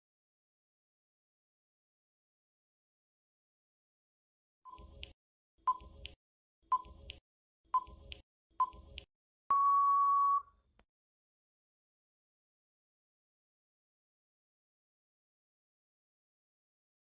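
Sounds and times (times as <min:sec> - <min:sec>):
short electronic beeps: 0:07.8 - 0:10.5
longer higher beep: 0:09.5 - 0:10.5.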